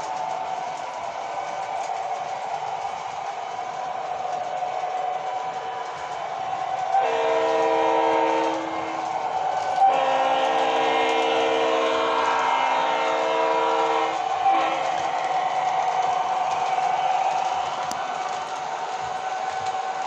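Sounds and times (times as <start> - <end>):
train running noise: 0.0 - 20.0
train horn blasts: 6.9 - 15.1.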